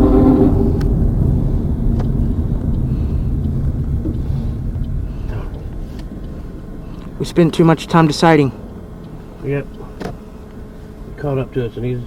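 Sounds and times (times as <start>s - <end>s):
pitched tone: 0.0s - 1.5s
moving vehicle rumble: 0.0s - 12.0s.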